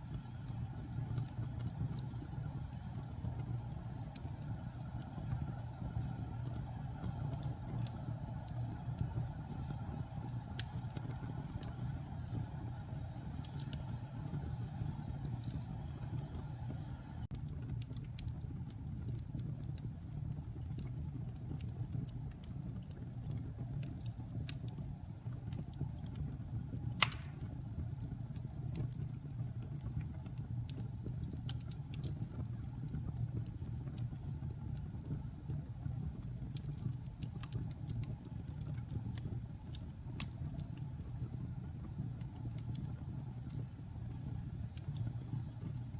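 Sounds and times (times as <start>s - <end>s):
fire crackles: 0.0s - 45.9s
wood fire rumbling: 0.0s - 45.9s
loud pop from fire: 27.0s - 27.6s.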